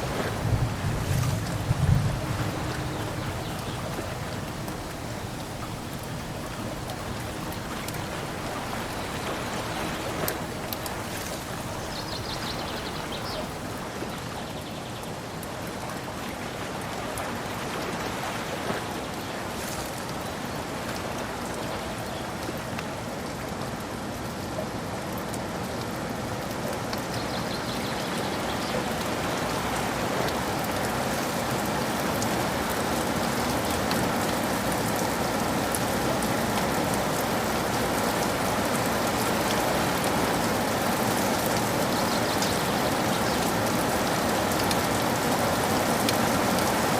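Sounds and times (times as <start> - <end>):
rain falling: 0.0 - 46.9.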